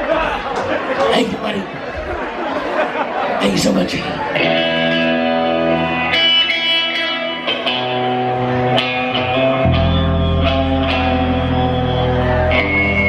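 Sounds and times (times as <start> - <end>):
electric guitar chords: 4.0 - 13.0.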